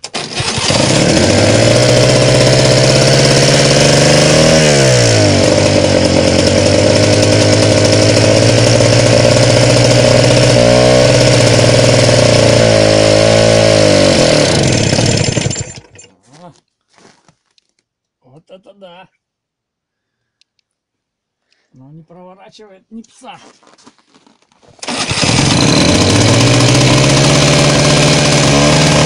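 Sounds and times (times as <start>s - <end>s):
small two-stroke engine running: 0.0s - 16.1s, 24.8s - 29.0s.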